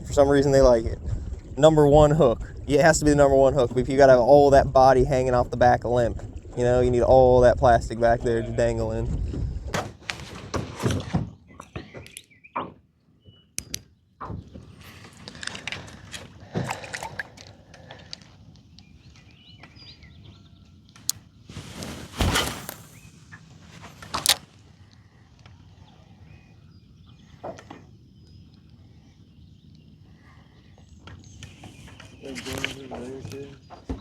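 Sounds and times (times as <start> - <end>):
gear knocking in a boat: 0.0 - 9.8
heavy thuds: 21.6 - 23.1.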